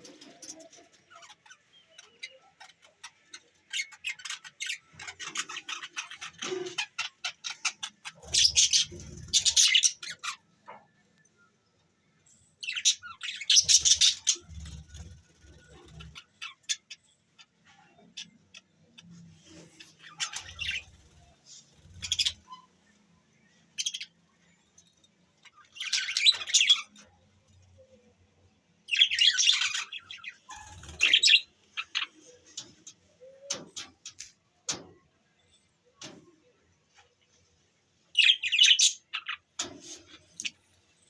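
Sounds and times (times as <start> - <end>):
budgerigars chirping: 1.1 - 10.4, 12.6 - 17.1, 20.0 - 22.6, 28.9 - 32.1.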